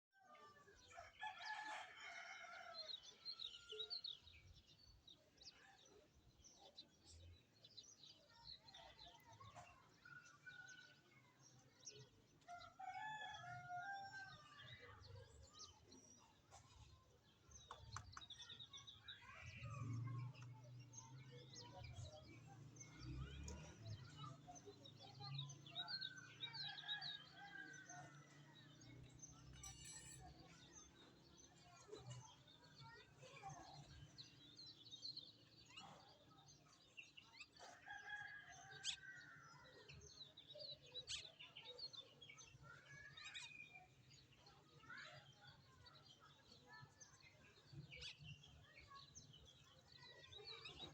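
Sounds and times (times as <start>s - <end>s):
small birds chirping: 14.8s - 50.9s.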